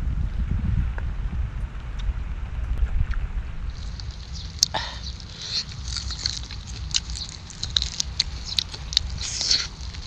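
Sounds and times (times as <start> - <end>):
wind on the microphone: 0.0 - 10.0
chewing and lip-smacking: 3.8 - 10.0.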